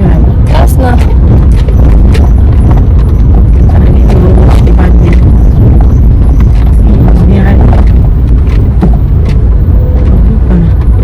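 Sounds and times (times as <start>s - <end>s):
low rumbling noise: 0.0s - 11.0s.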